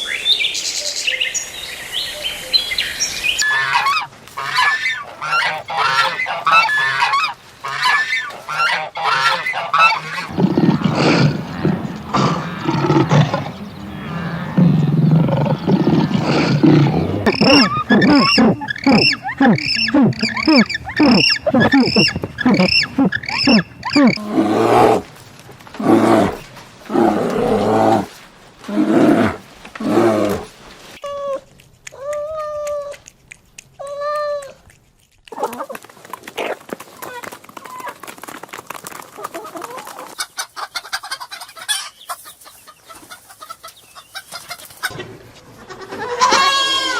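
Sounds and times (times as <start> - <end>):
animal calls: 3.4 - 35.8
big cat roaring: 10.3 - 25.1, 25.8 - 30.5.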